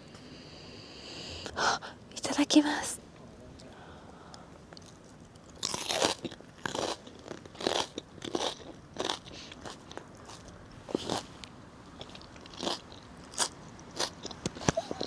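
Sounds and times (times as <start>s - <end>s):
chewing crunches: 4.7s - 11.3s, 12.0s - 15.0s
crunching bite into cabbage: 4.8s - 11.3s, 12.0s - 15.0s.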